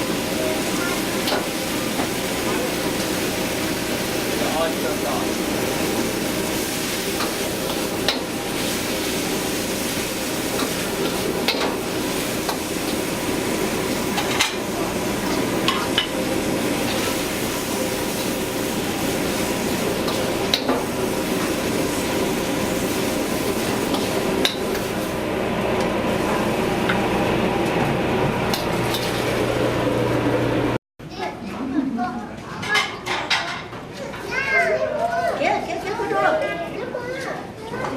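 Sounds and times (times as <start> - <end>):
food sizzling in metal pan: 0.0 - 27.2
steady kitchen hum: 0.0 - 37.9.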